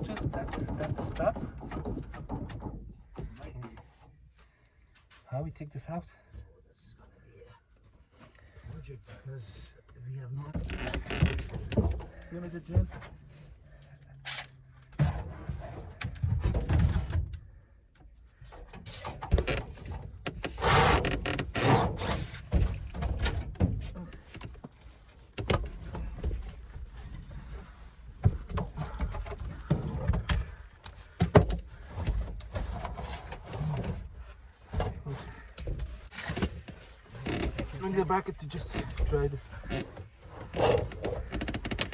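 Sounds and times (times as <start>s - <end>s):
equipment knocking and scraping: 0.0s - 3.8s.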